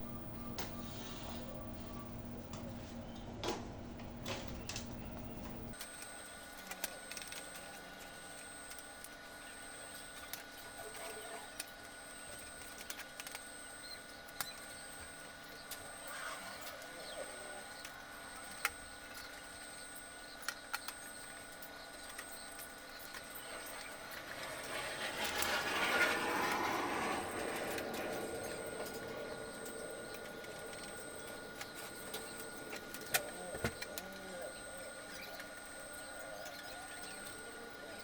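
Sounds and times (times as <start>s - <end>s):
faint background hum: 0.0s - 38.0s
thin high tone: 23.2s - 38.0s
rush of noise: 24.0s - 33.3s.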